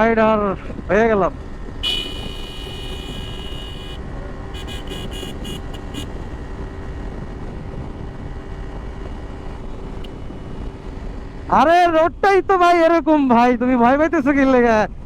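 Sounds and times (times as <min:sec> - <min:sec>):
motorcycle engine and wind rumble: 0:00.0 - 0:15.0
high-pitched horn honking: 0:01.8 - 0:06.4.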